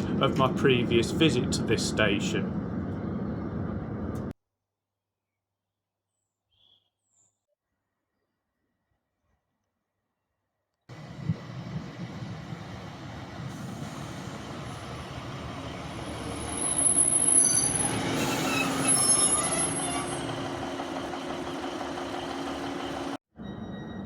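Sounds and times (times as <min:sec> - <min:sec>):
steady low hum: 0:00.0 - 0:04.3
train running rumble: 0:00.0 - 0:04.3, 0:10.9 - 0:23.2
train wheel and brake squeal: 0:15.8 - 0:24.0.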